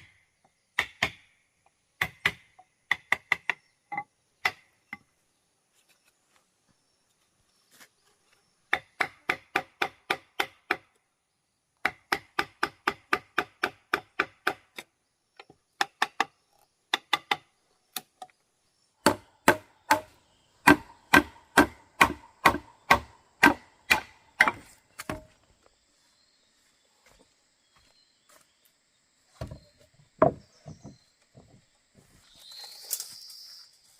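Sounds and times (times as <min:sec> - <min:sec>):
hand tool striking wood: 0:02.0 - 0:03.6, 0:08.7 - 0:10.9, 0:11.8 - 0:18.1, 0:19.0 - 0:25.4, 0:29.4 - 0:31.5.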